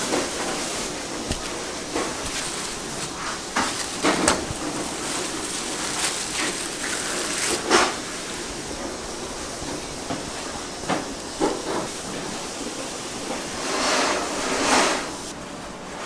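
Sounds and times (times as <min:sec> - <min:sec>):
utensils knocking and clattering: 0:00.0 - 0:12.4
steady hiss: 0:00.0 - 0:16.0.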